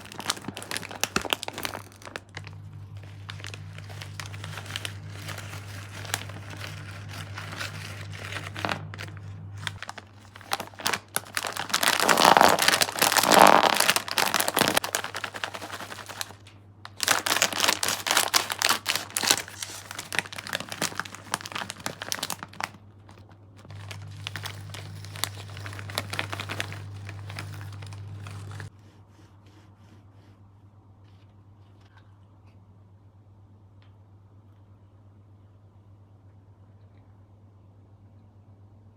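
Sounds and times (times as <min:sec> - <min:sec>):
plastic wrappers crinkling: 0:00.0 - 0:28.7
steady low hum: 0:00.0 - 0:38.9.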